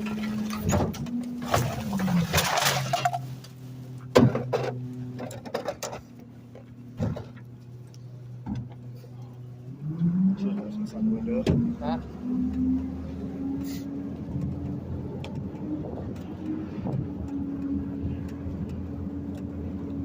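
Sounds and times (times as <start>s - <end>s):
clanks and knocks: 4.1s - 7.5s.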